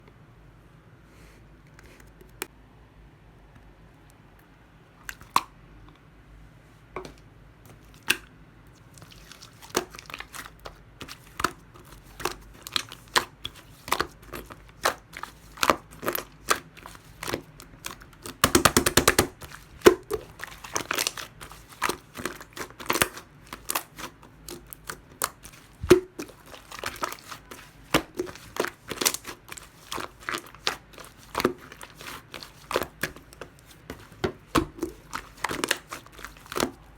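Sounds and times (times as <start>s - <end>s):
slime clicking and popping: 13.9s - 33.5s.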